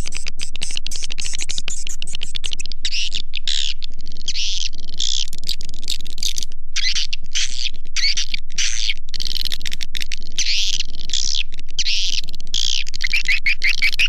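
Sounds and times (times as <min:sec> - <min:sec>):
low hum: 0:00.0 - 0:13.1
bird call rattle of chirps: 0:10.4 - 0:14.0
high bird chirps: 0:11.8 - 0:14.0.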